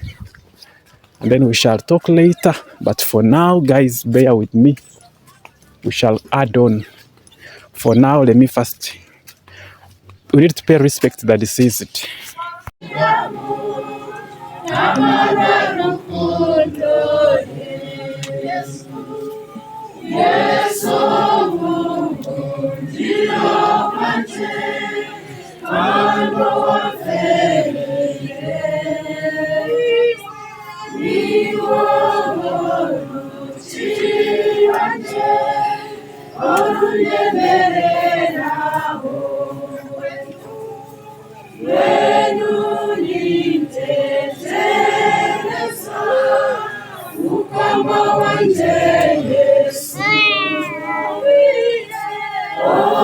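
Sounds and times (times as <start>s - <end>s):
group singing a hymn unaccompanied: 12.8s - 53.0s.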